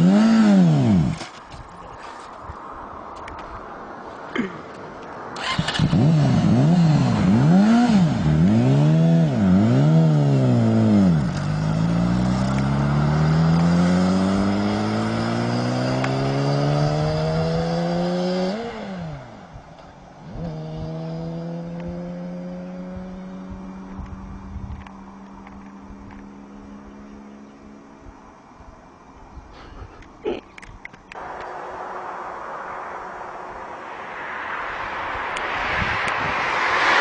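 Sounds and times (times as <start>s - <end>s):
motorcycle engine revving: 0.0s - 1.2s, 5.4s - 19.4s, 20.3s - 23.9s.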